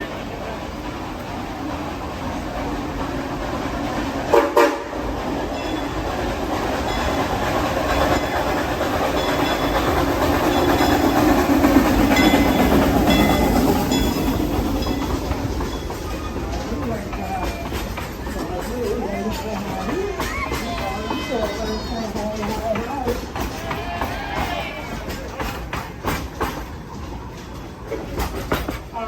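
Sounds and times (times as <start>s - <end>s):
train cars clacking over rails: 0.0s - 29.0s
steam locomotive whistle blasts: 4.3s - 4.9s.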